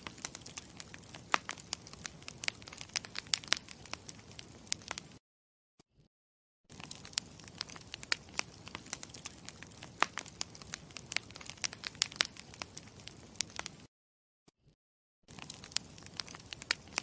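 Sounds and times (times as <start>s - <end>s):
campfire crackling: 0.0s - 5.2s, 6.7s - 13.9s, 15.3s - 17.0s.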